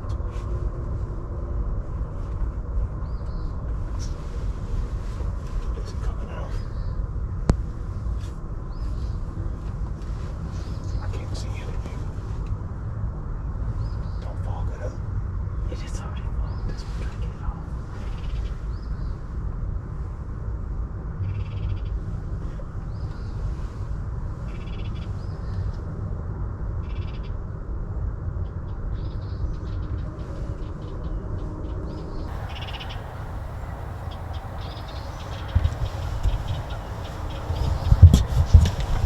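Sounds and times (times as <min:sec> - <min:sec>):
bird chirps and trills: 0:32.3 - 0:39.0
steady low rumble: 0:32.3 - 0:39.0.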